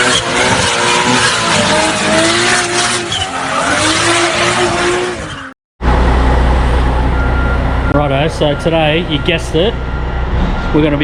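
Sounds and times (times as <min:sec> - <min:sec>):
car engine revving: 0:00.0 - 0:05.5
tyres screeching: 0:00.0 - 0:05.6.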